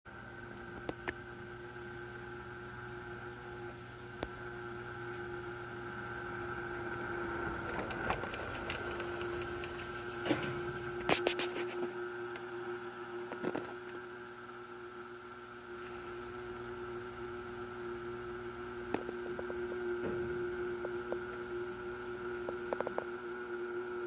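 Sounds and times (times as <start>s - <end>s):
high-pitched motor whine: 0.8s - 24.0s
model train motor humming: 6.3s - 11.2s.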